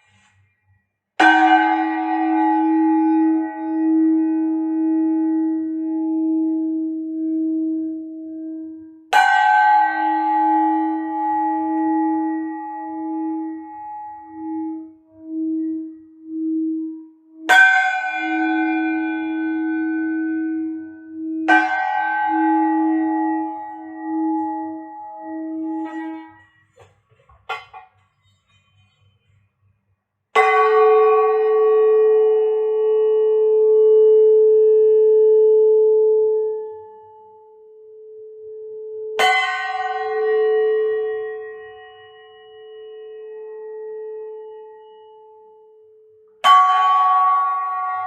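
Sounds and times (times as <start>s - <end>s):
singing bowl humming: 1.2s - 26.8s, 30.7s - 48.0s
bell-like strikes: 17.5s - 26.8s.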